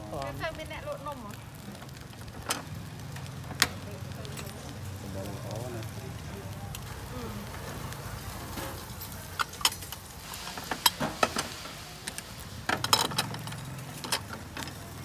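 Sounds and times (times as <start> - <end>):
metal irons clinking and clanking: 12.7 - 14.8.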